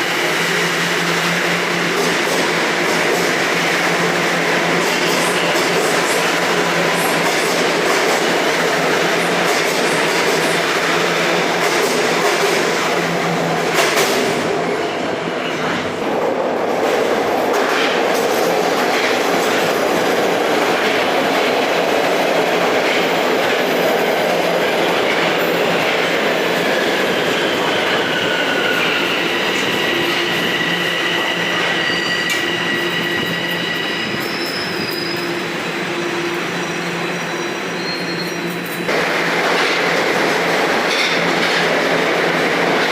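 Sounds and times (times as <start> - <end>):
subway train rumbling: 0.0 - 42.9
high wheel squeal: 26.8 - 38.9.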